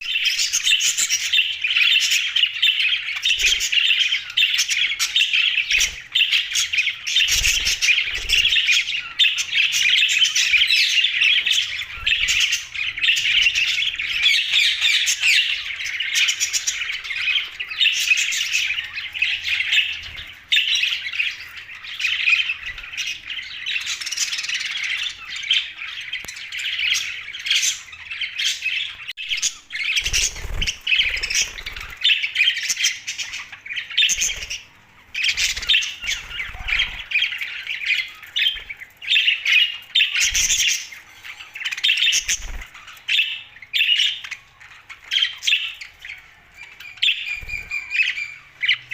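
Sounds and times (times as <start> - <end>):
budgerigars chirping and squawking: 0.0 - 48.9.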